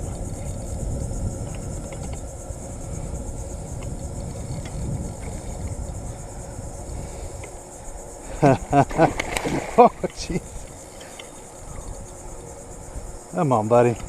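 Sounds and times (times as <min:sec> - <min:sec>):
high-pitched insect hiss: 0:00.0 - 0:14.0
wind rumble on microphone: 0:00.0 - 0:14.0
faint clicks: 0:08.9 - 0:12.0.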